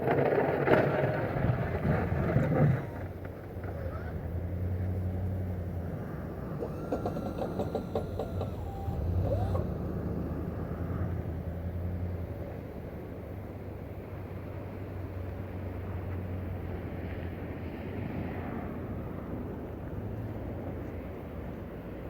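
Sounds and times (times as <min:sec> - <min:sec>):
light ticking: 0:02.8 - 0:10.9
motor humming: 0:02.8 - 0:11.8.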